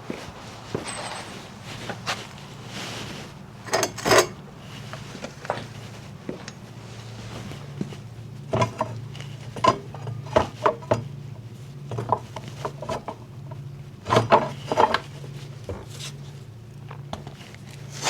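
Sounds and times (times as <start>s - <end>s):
steady low hum: 0.0s - 18.0s
metal tools clinking: 0.7s - 1.6s, 3.6s - 4.4s.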